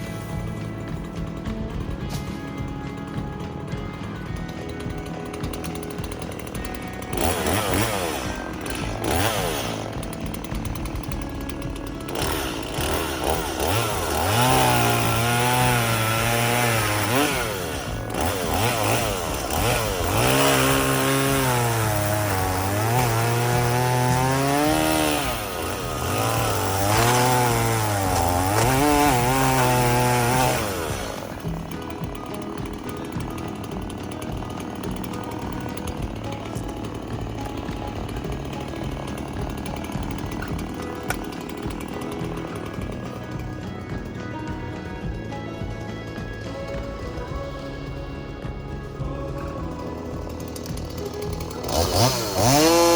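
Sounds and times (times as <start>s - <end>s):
chainsaw running and cutting: 0.0s - 52.9s.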